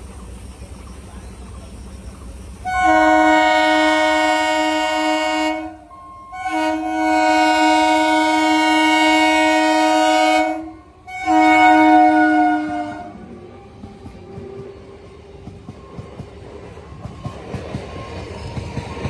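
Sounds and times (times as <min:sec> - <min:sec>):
train horn blasts: 0:02.6 - 0:13.4.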